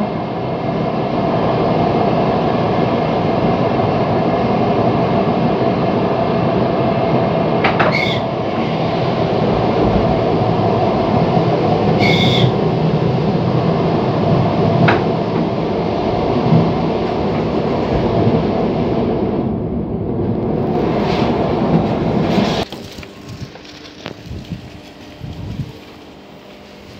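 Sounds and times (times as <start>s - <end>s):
train wheels rumbling on track: 0.0s - 26.9s
high squeals: 7.8s - 8.4s, 11.9s - 12.6s.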